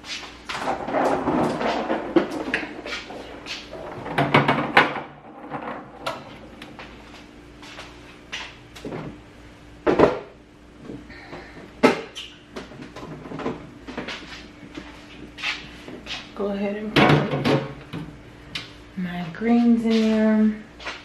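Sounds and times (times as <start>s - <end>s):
containers knocking on fridge shelves: 3.9s - 6.3s, 17.0s - 18.1s.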